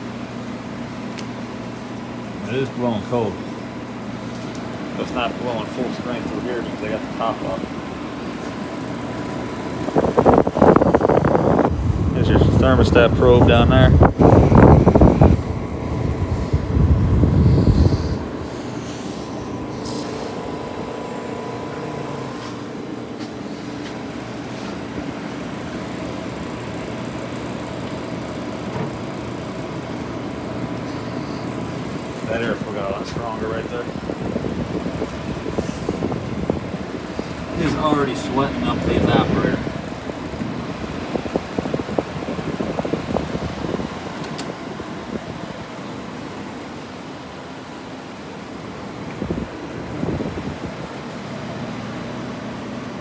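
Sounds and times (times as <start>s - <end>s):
blower fan moving air: 0.0s - 53.0s
compressor humming: 0.0s - 53.0s.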